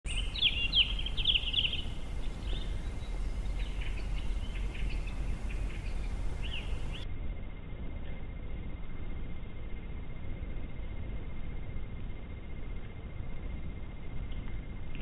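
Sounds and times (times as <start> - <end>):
small birds chirping: 0.0 - 7.0
low background rumble: 0.1 - 15.0.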